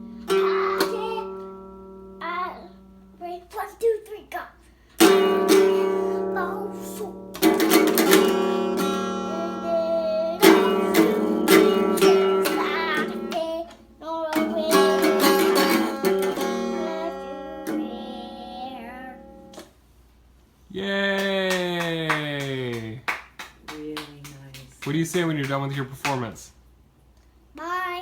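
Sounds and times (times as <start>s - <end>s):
acoustic guitar strummed chords: 0.0s - 3.7s, 5.0s - 19.7s
child singing: 0.3s - 1.6s, 2.2s - 4.6s, 5.4s - 7.4s, 9.2s - 19.5s, 27.6s - 28.0s.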